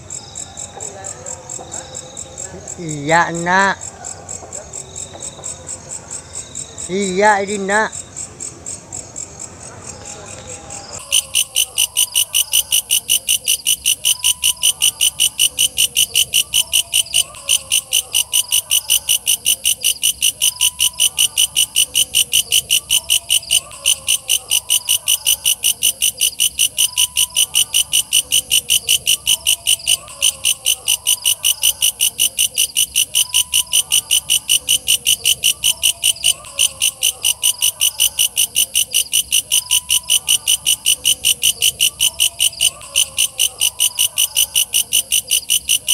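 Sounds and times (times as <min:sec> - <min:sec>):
katydid chirping: 0:11.0 - 0:45.9.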